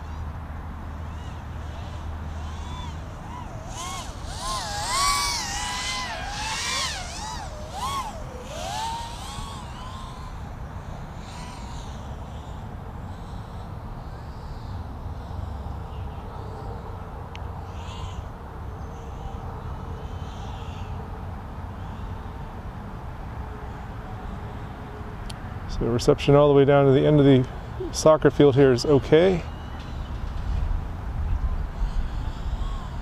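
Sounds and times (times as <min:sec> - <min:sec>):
quadcopter motors whining: 0:00.0 - 0:22.4, 0:29.3 - 0:33.0.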